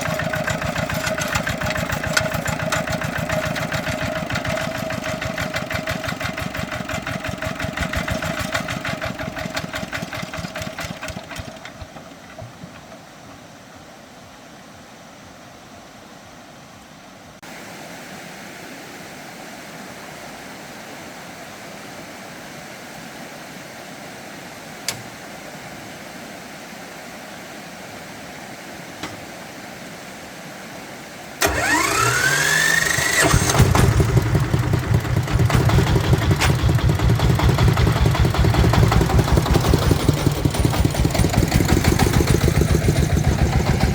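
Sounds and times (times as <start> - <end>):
starter motor whine: 0.0 - 13.0, 31.4 - 43.9
tractor engine idling: 0.0 - 13.5, 31.4 - 43.9
click: 24.8 - 25.1.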